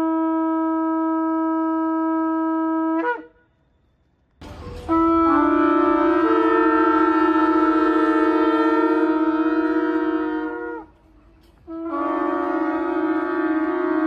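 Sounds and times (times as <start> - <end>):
ram's horn blast: 4.4 - 11.0, 11.7 - 14.0.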